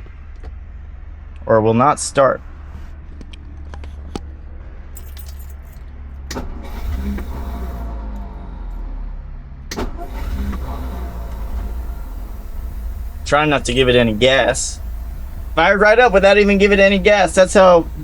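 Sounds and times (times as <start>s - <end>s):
car engine starting and running: 5.0s - 18.0s.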